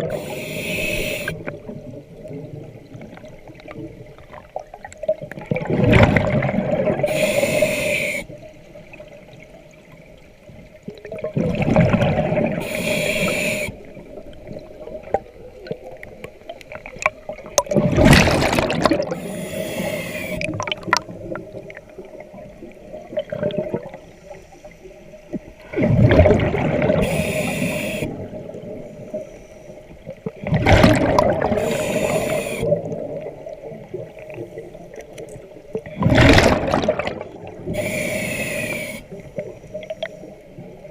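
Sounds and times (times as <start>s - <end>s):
regulator breathing underwater: 0.0s - 1.5s, 6.9s - 8.4s, 12.4s - 14.0s, 18.9s - 20.8s, 26.9s - 30.0s, 31.4s - 33.0s, 37.6s - 40.4s
exhaled bubbles rushing: 1.3s - 7.1s, 11.0s - 12.7s, 16.8s - 19.3s, 20.4s - 24.0s, 25.6s - 27.1s, 30.2s - 34.4s, 35.8s - 37.8s.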